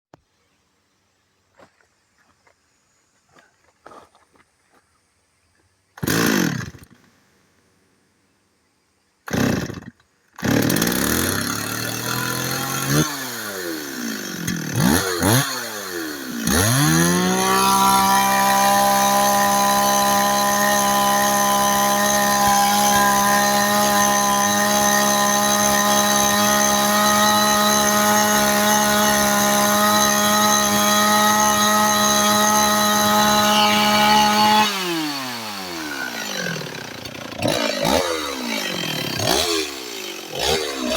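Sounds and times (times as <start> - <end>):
chainsaw engine revving: 6.0 - 7.0, 9.3 - 40.9.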